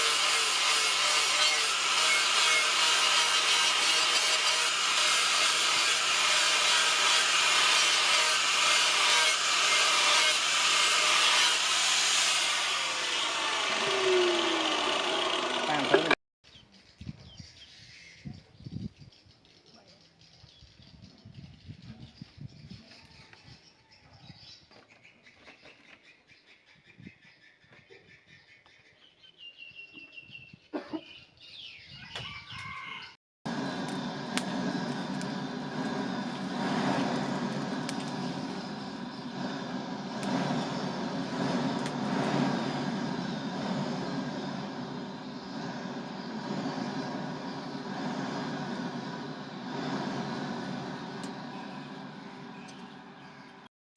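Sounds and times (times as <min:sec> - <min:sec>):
machine drone: 0:00.0 - 0:16.2, 0:33.5 - 0:53.7
power grinder grinding steel: 0:00.0 - 0:16.2, 0:33.5 - 0:53.6
rooster crowing: 0:32.0 - 0:33.2.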